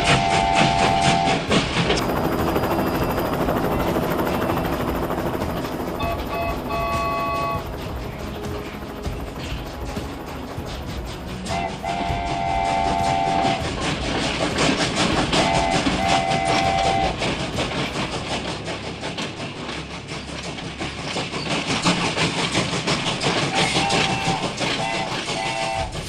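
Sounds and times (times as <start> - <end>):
two-tone train horn blasts: 0.0 - 1.5, 6.0 - 7.9, 11.3 - 13.8, 15.3 - 17.2, 23.5 - 26.0
clickety-clack of train wheels: 0.0 - 26.0.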